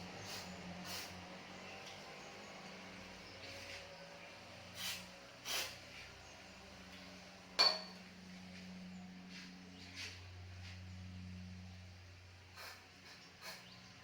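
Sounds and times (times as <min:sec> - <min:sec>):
steady low hum: 0:00.0 - 0:14.0
sharp metallic clink: 0:07.6 - 0:08.0.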